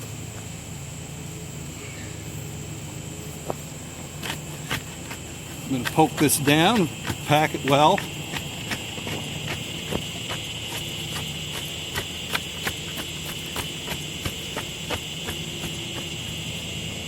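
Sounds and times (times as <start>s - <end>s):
crickets chirping: 0.0s - 17.0s
bar tamping soil: 3.4s - 16.8s.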